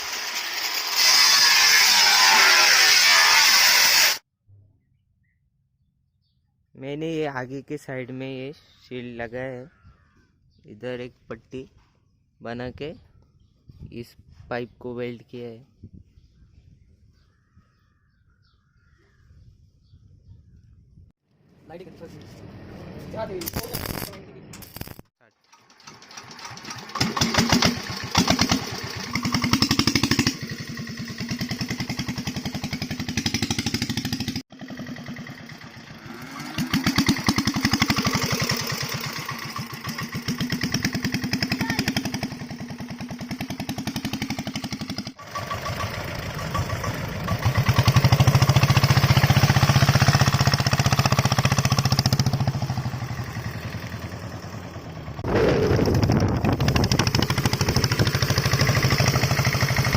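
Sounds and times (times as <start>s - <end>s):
diesel motorcycle engine revving: 25.6s - 59.9s.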